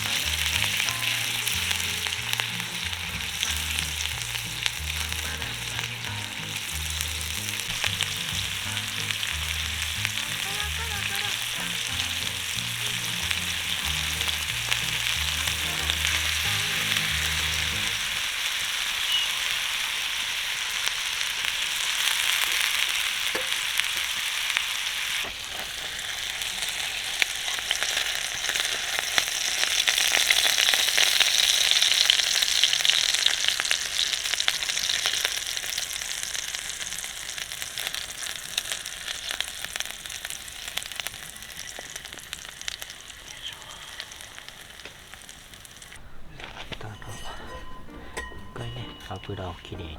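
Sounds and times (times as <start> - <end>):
faint background music bass: 0.0 - 18.2, 46.2 - 49.9
food sizzling in hot oil: 0.0 - 46.0.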